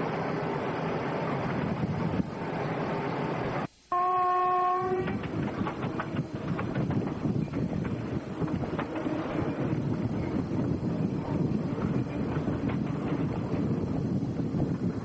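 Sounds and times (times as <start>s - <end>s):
train rumbling and rattling: 0.0s - 15.0s
train horn: 3.9s - 5.3s
wheels clacking over rail joints: 5.0s - 14.4s.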